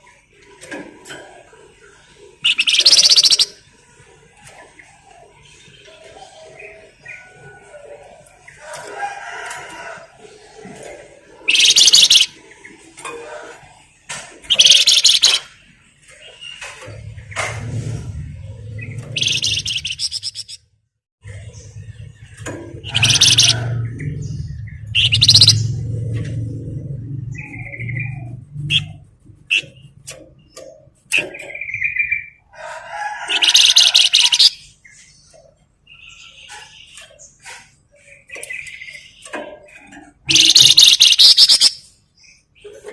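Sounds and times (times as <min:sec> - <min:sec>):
songbird singing: 0:01.9 - 0:03.8, 0:04.5 - 0:17.7, 0:18.5 - 0:20.6, 0:21.2 - 0:32.5, 0:33.2 - 0:42.9
soft bird chirps: 0:02.4 - 0:03.6, 0:14.5 - 0:15.5, 0:18.8 - 0:20.6
bird buzzy rattle call: 0:02.5 - 0:03.6, 0:11.5 - 0:12.3, 0:14.5 - 0:15.5, 0:19.2 - 0:20.6, 0:22.8 - 0:23.6, 0:24.9 - 0:25.8, 0:33.3 - 0:34.6, 0:40.3 - 0:41.8.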